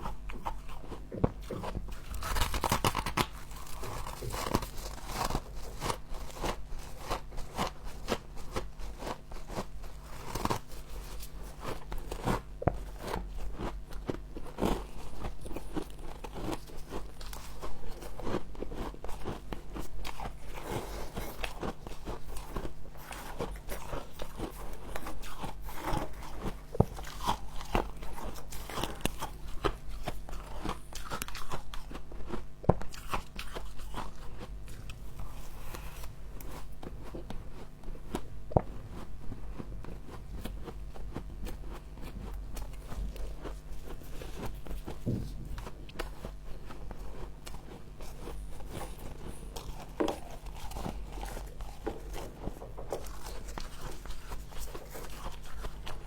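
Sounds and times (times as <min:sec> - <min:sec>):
steady low hum: 0:00.0 - 0:56.0
crackly crunching of frost: 0:00.4 - 0:37.6.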